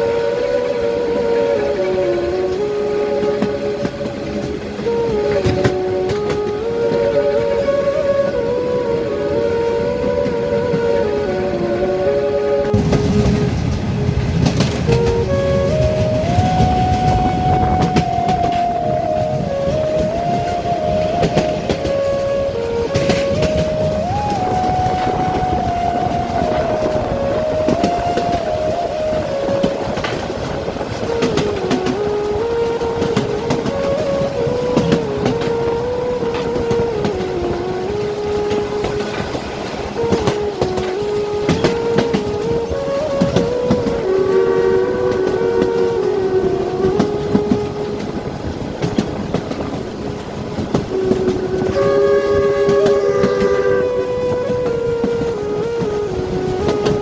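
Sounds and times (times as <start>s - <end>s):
wavering tone: 0.0s - 57.0s
train rumbling on track: 12.6s - 57.0s.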